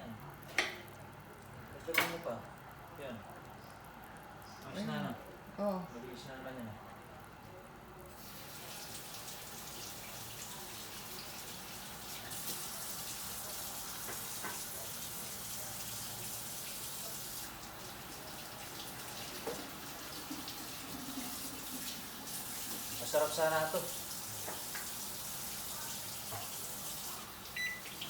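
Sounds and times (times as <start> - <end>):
water running: 8.1 - 28.0.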